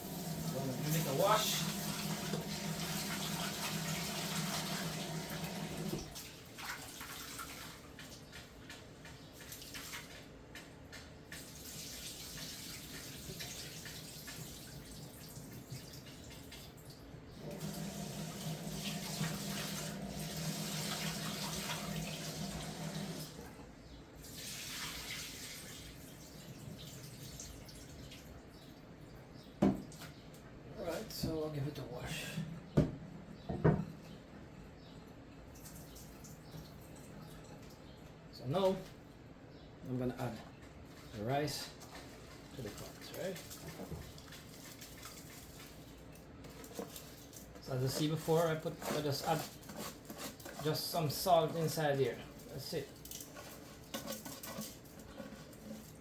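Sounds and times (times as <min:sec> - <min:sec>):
tap running into sink: 0:00.1 - 0:06.2, 0:29.6 - 0:30.1.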